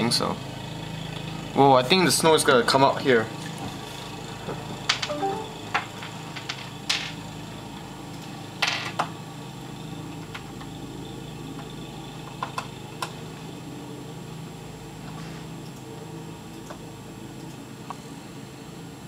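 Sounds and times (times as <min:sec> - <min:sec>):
low indoor hum: 0:04.7 - 0:19.0.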